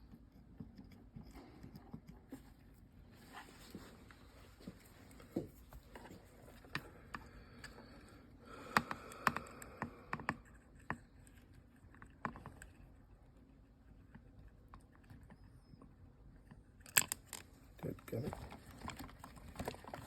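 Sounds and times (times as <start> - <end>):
small tools clicking and tapping: 16.8 - 20.0.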